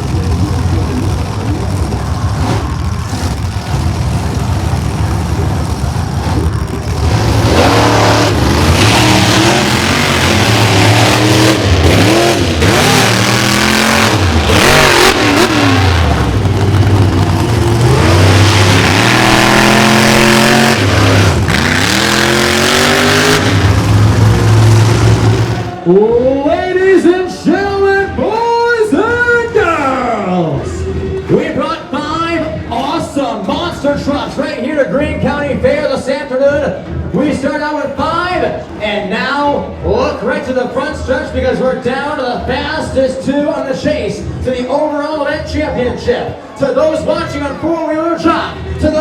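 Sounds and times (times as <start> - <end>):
monster truck engines revving: 0.0 - 26.0.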